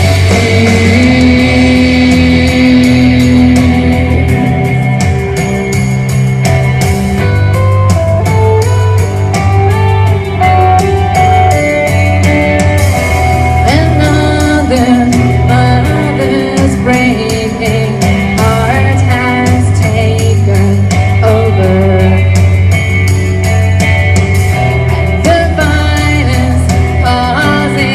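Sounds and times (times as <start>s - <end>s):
person singing: 0.0s - 5.4s, 13.6s - 22.4s, 24.8s - 27.9s
rock music with electric guitar: 0.0s - 27.9s.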